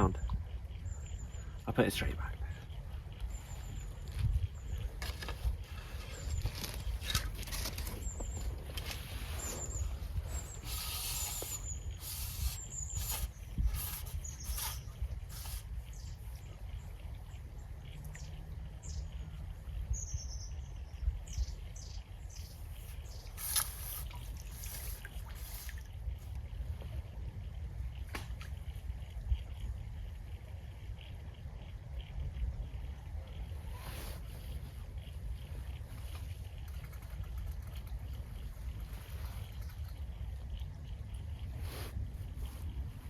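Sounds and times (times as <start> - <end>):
small bird chirping: 0.0 - 25.8
wind rumbling on microphone: 0.0 - 43.0
clicks and rustles: 4.0 - 9.8, 35.9 - 40.1.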